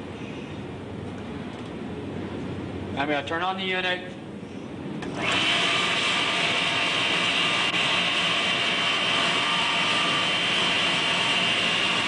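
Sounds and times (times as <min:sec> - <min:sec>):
high-pitched motor whine: 0:05.0 - 0:12.0.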